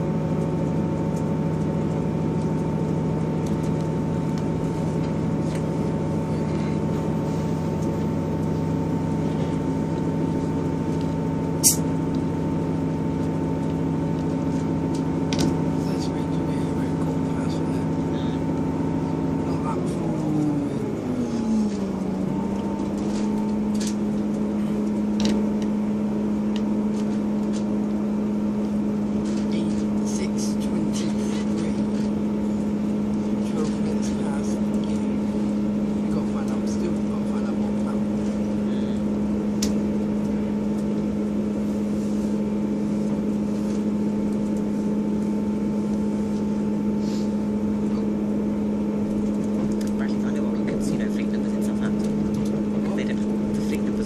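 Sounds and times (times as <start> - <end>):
train engine droning: 0.0 - 54.0.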